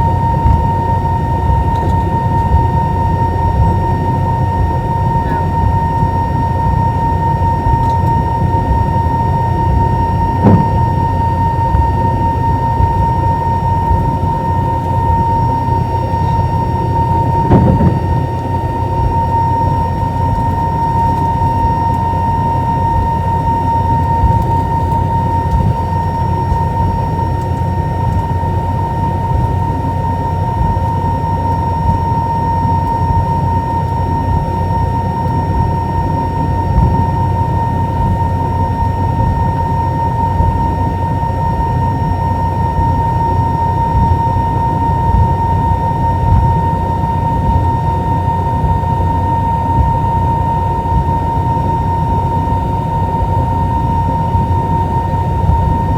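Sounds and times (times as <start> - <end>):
jet engine rumble and whine: 0.0 - 55.9
short thumps: 10.4 - 11.1, 17.3 - 18.5.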